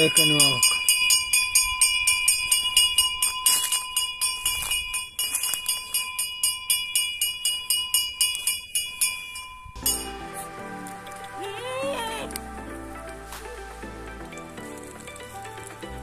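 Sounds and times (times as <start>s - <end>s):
small metal bells jingling: 0.0s - 12.1s.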